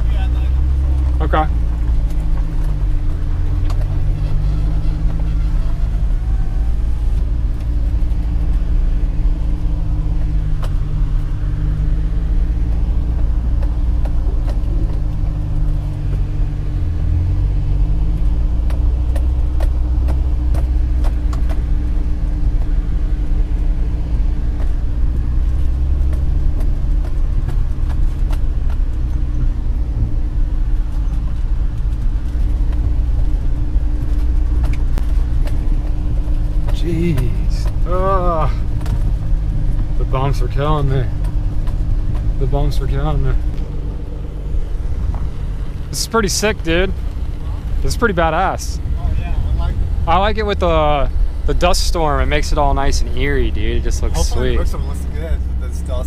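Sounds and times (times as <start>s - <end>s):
car engine at low revs: 0.0s - 56.0s
road rumble: 0.0s - 56.0s
stones knocking under car: 18.0s - 23.6s, 40.9s - 45.9s.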